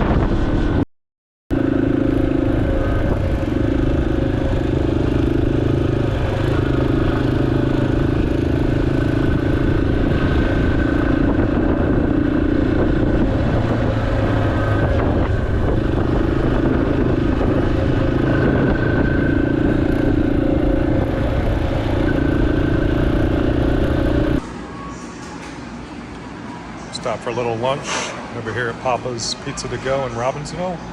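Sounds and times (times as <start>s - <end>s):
motorcycle engine running: 1.5s - 24.4s.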